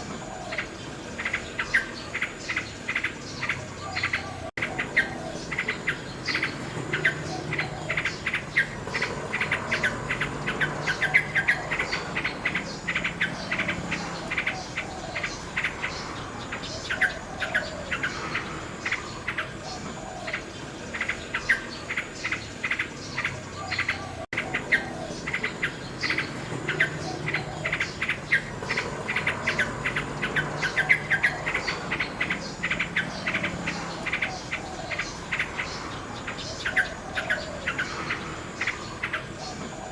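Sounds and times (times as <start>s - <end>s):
insects chirping: 0.0s - 39.9s
nightingale singing trills: 0.0s - 39.9s.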